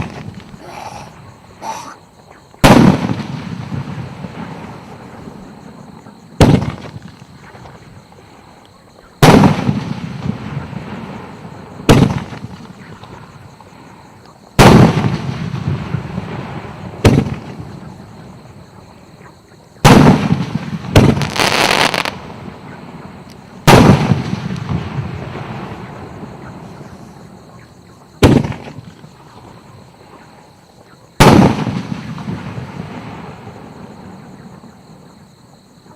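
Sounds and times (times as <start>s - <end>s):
firework bangs with rolling echo: 0.0s - 0.5s, 2.6s - 8.2s, 9.2s - 13.7s, 14.6s - 18.8s, 19.8s - 29.7s, 31.2s - 35.1s
firework crackling: 19.8s - 22.6s.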